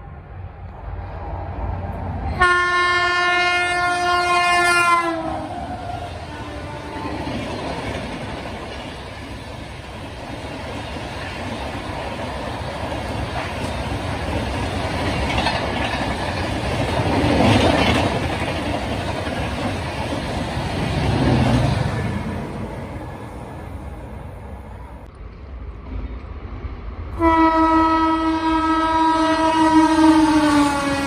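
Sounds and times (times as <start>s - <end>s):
train wheels rumbling on rail: 0.0s - 31.0s
wheels clickety-clack over rail joints: 4.6s - 23.6s.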